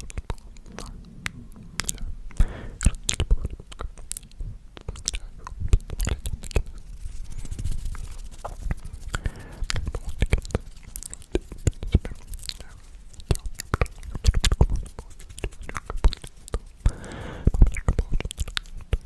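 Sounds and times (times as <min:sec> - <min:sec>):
soft whispering: 0:00.0 - 0:03.8, 0:04.8 - 0:19.0
wet mouth clicks and lip smacks: 0:01.8 - 0:07.0, 0:07.6 - 0:19.0.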